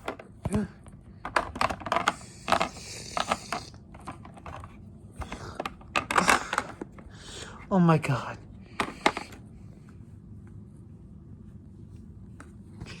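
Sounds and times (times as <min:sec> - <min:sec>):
plastic toys clicking and knocking: 0:00.0 - 0:00.6, 0:01.2 - 0:07.0, 0:08.8 - 0:09.4.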